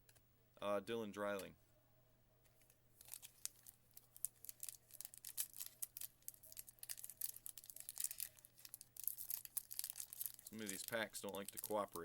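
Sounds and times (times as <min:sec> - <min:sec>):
foil wrapper crinkling and tearing: 0:03.0 - 0:12.0.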